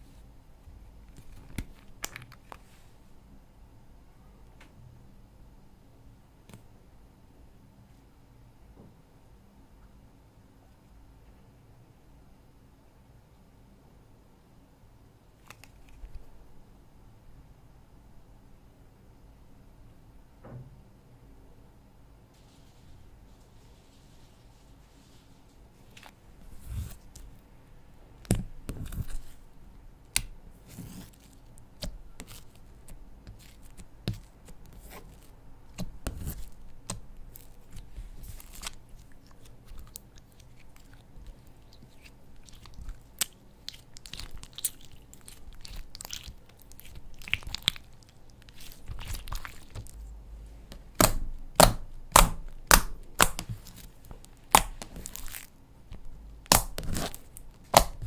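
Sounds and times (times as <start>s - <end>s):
slime squished with sticky pops: 30.1s - 50.0s, 50.7s - 58.0s.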